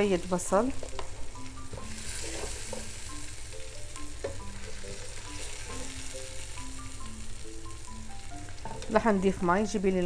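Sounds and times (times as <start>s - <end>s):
fish and onions sizzling in oil: 0.0s - 10.0s
wooden spatula stirring: 0.4s - 3.0s.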